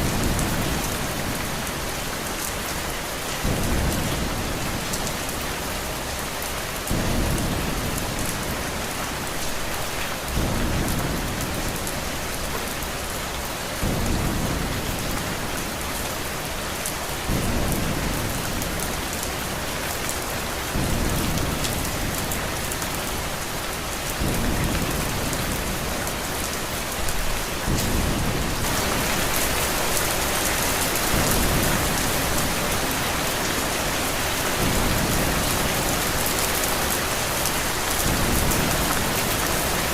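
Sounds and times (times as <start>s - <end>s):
steady rain: 0.0s - 39.9s
low thunder rumble: 27.5s - 36.7s.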